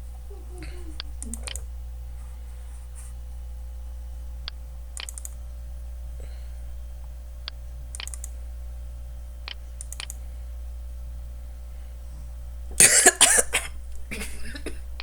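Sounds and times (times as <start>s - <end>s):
low electrical hum: 0.0s - 15.0s
computer keys clicking: 1.1s - 1.7s, 4.5s - 5.6s, 7.4s - 8.4s, 9.4s - 10.2s.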